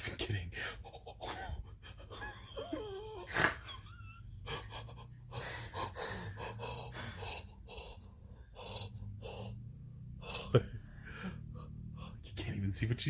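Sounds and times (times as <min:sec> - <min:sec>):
person gasping and breathing heavily: 0:05.3 - 0:09.6
person moaning: 0:10.2 - 0:12.2.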